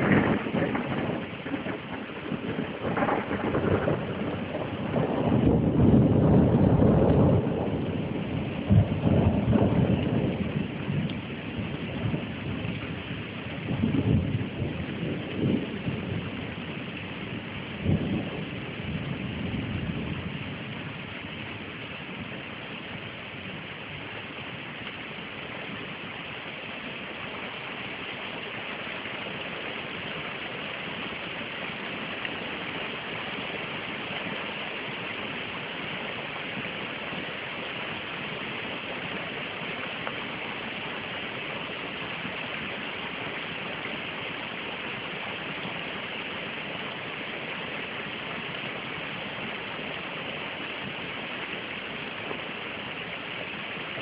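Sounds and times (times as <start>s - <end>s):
thunder rumble: 0.0s - 23.7s
steady rain falling: 0.0s - 54.0s.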